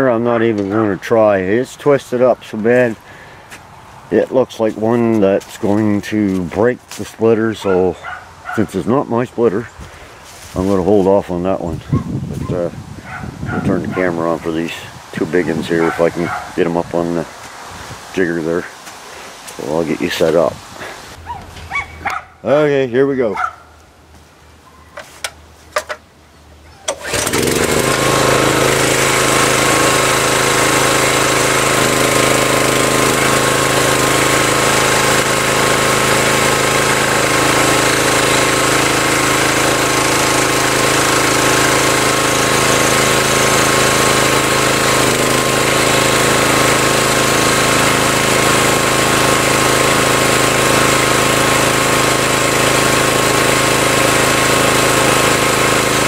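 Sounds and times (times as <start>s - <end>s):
small engine running: 26.9s - 56.0s.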